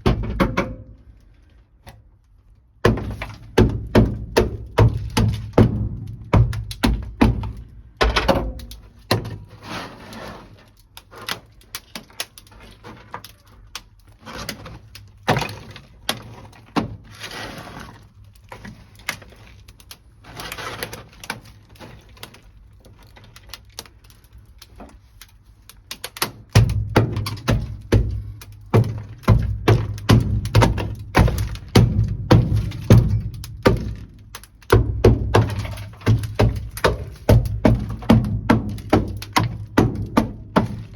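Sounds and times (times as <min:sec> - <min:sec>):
cracking and scraping: 0:00.0 - 0:40.9.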